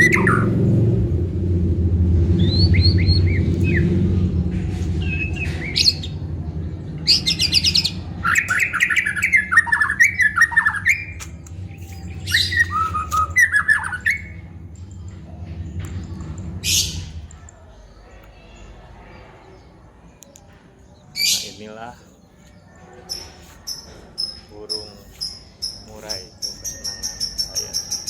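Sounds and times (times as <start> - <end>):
songbird whistling: 0.0 - 0.5, 2.4 - 4.0, 5.0 - 6.2, 7.1 - 14.4
low steady hum: 0.0 - 20.4
sharp bird clicking notes: 10.4 - 14.2.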